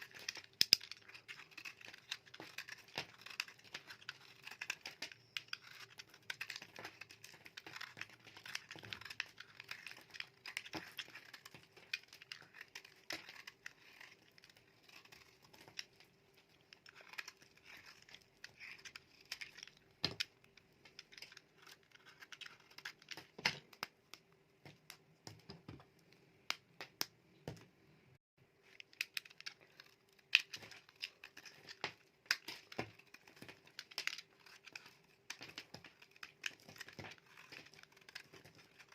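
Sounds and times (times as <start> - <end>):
knife cutting dry soap: 0.0 - 23.8.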